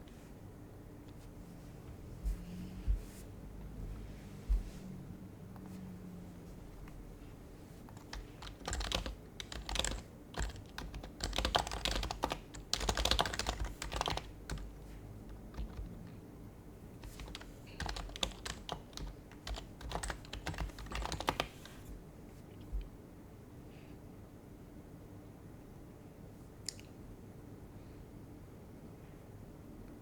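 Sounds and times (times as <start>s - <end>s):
soft keyboard typing: 7.9s - 16.2s, 17.0s - 21.8s.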